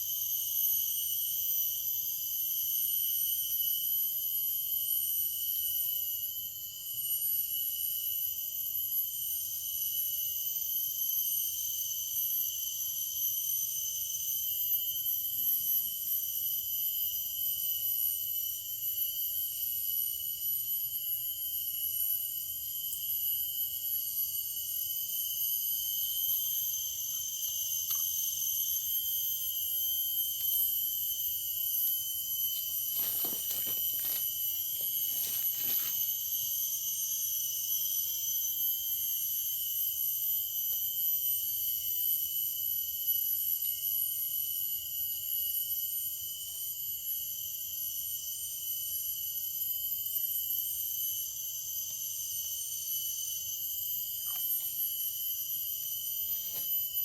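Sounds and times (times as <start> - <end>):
high-pitched insect chorus: 0.0 - 57.0
faint rustles or knocks: 32.6 - 36.0.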